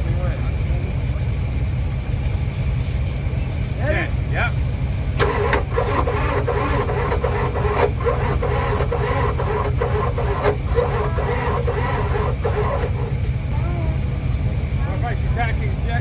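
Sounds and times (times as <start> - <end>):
engine idling: 3.2 - 16.0
starter motor cranking diesel engine: 4.7 - 16.0.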